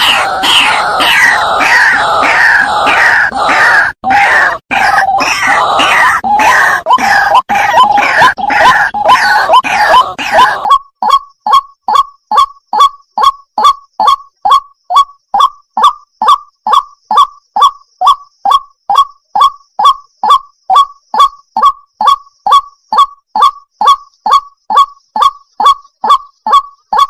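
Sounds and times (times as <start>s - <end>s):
water hen calling: 0.0s - 10.8s.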